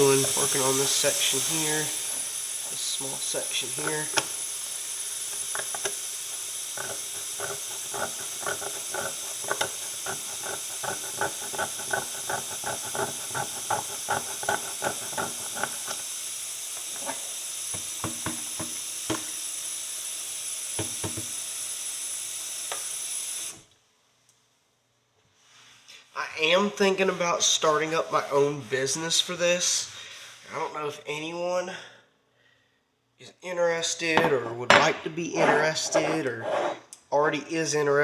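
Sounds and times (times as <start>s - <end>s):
steady hiss: 0.0s - 23.6s, 25.3s - 30.9s
metal pick scraping horseshoe: 2.7s - 4.4s, 5.3s - 16.0s, 34.2s - 36.9s.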